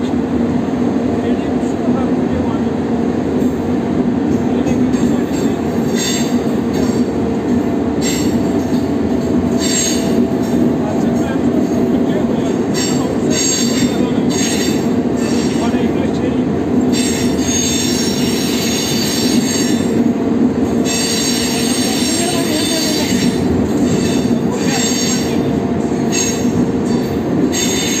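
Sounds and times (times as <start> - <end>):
rumble of wheels on rails: 0.0 - 28.0
high-pitched wheel squeal: 5.9 - 6.4, 9.6 - 10.2, 16.9 - 20.0, 20.8 - 25.5, 26.1 - 28.0.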